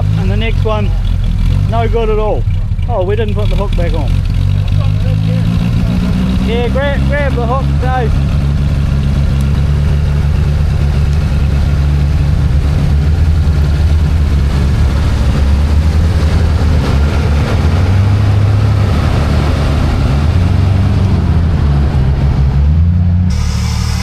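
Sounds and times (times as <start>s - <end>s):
vehicle engine revving: 0.0s - 24.0s.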